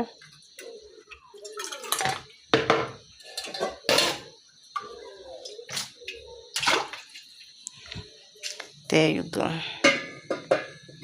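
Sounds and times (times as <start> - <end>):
metal pot clanking: 1.4 - 7.0, 9.7 - 11.0.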